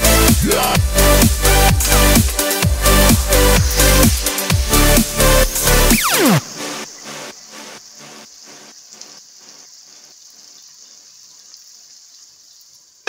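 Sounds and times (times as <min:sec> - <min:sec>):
vegetables sizzling in hot oil: 0:07.0 - 0:13.0.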